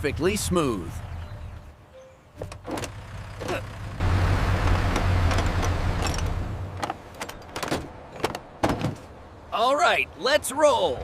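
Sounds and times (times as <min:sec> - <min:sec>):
road roller engine rumbling: 0:00.0 - 0:07.5.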